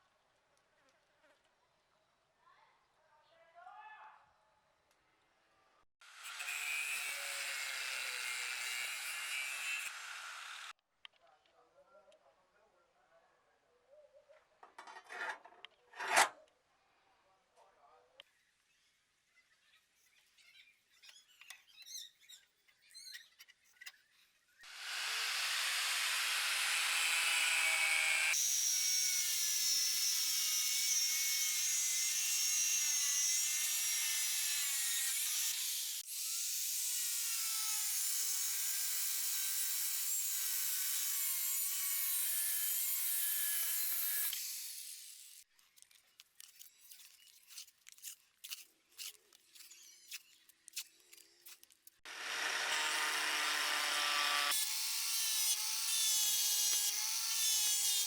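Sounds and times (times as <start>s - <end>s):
power tool whining and grinding: 6.1s - 10.7s, 24.7s - 45.4s, 52.1s - 58.0s
light tapping and scraping: 14.6s - 16.4s.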